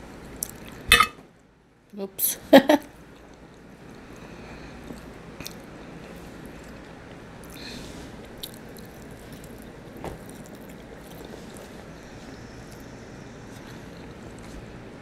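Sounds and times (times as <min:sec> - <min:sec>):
chewing meat: 0:03.1 - 0:07.6, 0:08.2 - 0:14.8.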